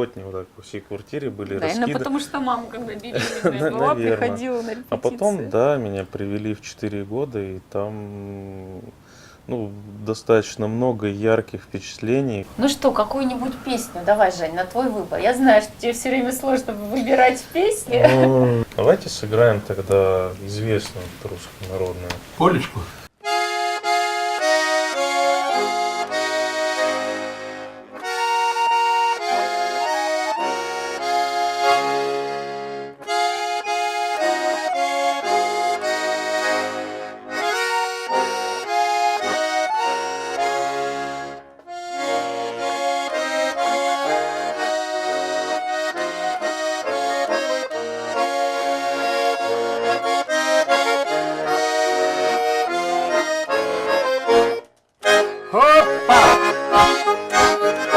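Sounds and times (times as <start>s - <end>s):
button accordion playing polka: 1.6s - 5.4s, 23.2s - 57.9s.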